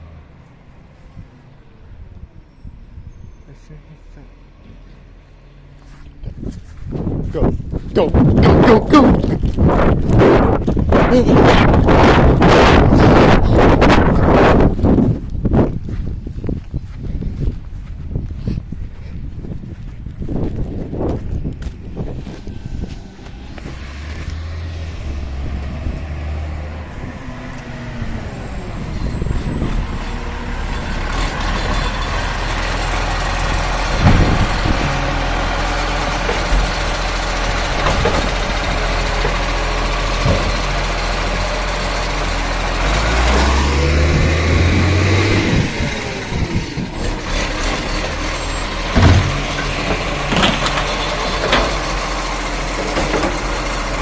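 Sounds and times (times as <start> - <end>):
diesel engine running: 0.0 - 54.0
sharp bangs and clanks: 33.9 - 34.9, 47.1 - 52.0.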